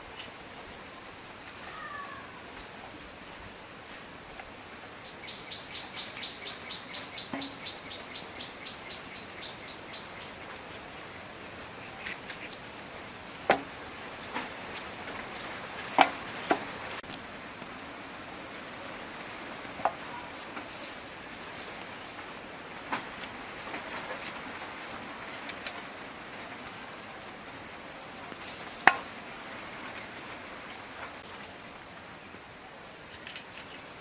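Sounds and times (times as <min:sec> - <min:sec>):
bird calling: 0:05.0 - 0:10.6, 0:13.8 - 0:17.0.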